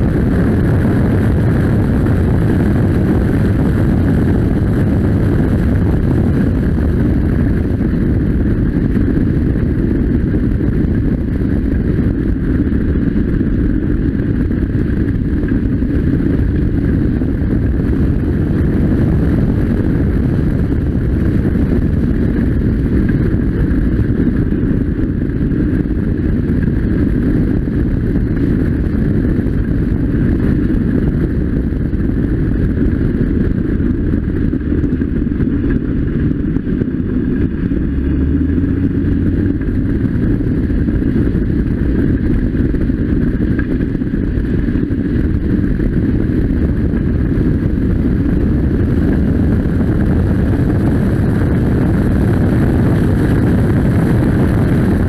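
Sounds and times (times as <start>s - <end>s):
car engine running at speed: 0.0s - 55.0s
wind rushing over microphone: 0.0s - 55.0s.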